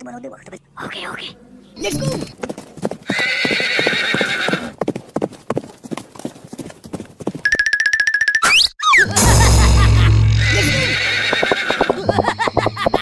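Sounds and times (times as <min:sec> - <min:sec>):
clip-clopping hoofbeats: 0:02.2 - 0:08.1, 0:11.0 - 0:12.3
horse neighing: 0:03.1 - 0:04.8, 0:10.3 - 0:12.2.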